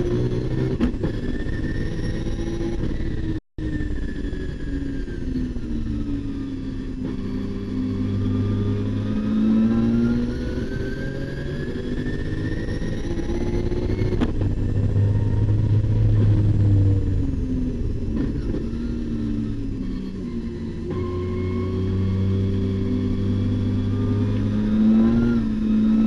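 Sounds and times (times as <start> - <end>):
car engine revving: 5.8 - 26.0.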